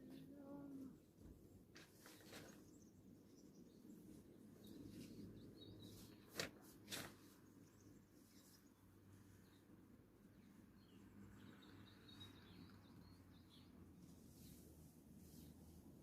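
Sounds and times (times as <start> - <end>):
faint bird chirps: 10.5 - 14.6.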